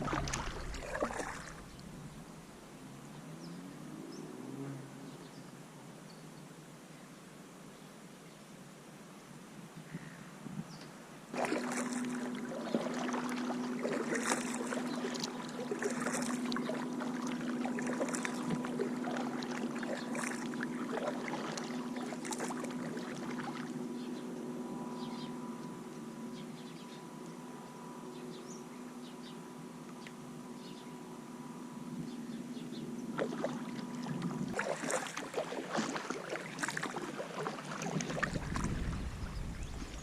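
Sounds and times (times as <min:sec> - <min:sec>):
paddle splashing water: 0:00.0 - 0:02.2, 0:11.3 - 0:23.8, 0:33.1 - 0:40.0
steady hum: 0:00.0 - 0:03.0, 0:11.1 - 0:40.0.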